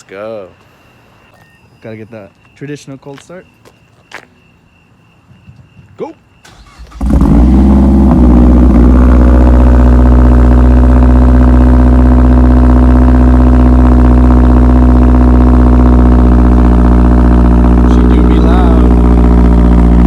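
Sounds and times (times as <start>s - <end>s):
car engine idling loudly: 7.0s - 20.0s.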